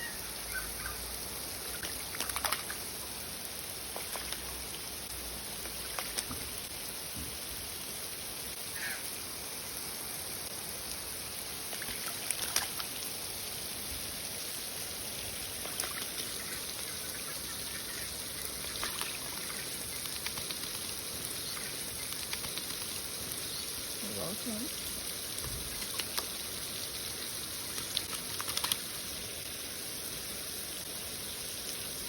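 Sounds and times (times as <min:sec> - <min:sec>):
water running from hose: 0:00.0 - 0:32.0
bird splashing in water: 0:01.6 - 0:03.0, 0:03.9 - 0:04.6, 0:05.6 - 0:06.6, 0:11.6 - 0:13.0, 0:15.4 - 0:24.0, 0:25.6 - 0:29.1.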